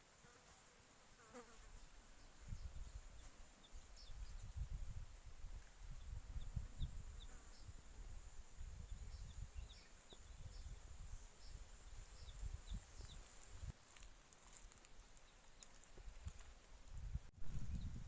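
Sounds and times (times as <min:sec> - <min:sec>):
insect chirps: 0:01.8 - 0:13.8.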